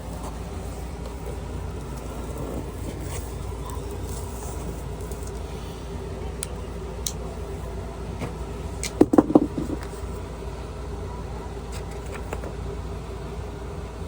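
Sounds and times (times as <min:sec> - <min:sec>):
loud knocks and rattles: 0:09.0 - 0:09.8.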